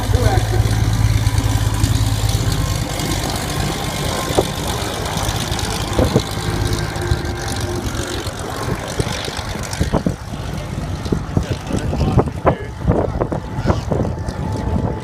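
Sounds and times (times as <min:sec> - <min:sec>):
propeller airplane engine: 0:00.0 - 0:15.0
wind noise on microphone: 0:04.0 - 0:15.0.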